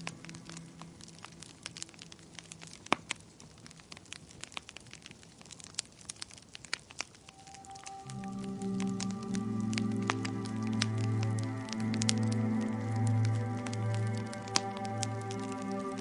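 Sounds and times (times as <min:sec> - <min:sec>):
soft music: 0:00.0 - 0:02.9, 0:07.2 - 0:16.0
wood fire crackling: 0:00.0 - 0:16.0.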